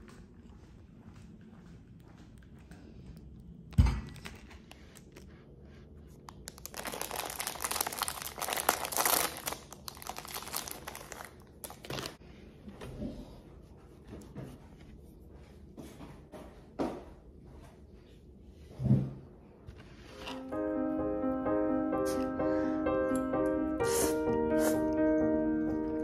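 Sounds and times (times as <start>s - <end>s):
plastic packet tearing and crinkling: 6.4s - 12.2s.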